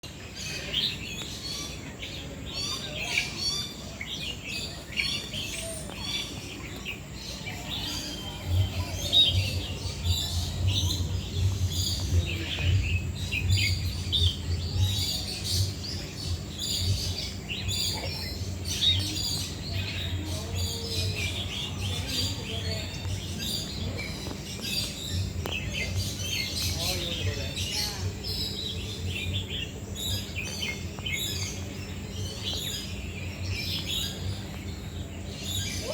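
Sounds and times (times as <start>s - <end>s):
birds chirping: 0.0s - 35.9s.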